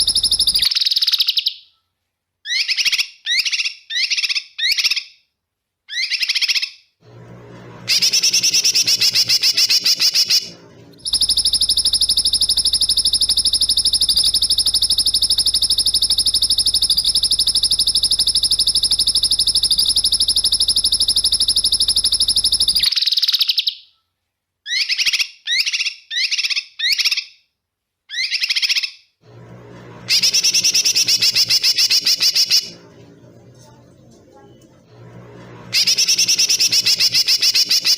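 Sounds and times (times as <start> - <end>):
high buzzing bird trill: 0.0 - 1.2, 7.7 - 23.0, 29.7 - 37.9.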